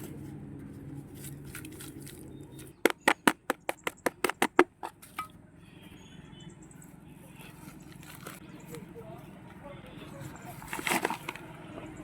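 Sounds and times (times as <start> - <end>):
sharp taps on plant tub: 2.8 - 4.9.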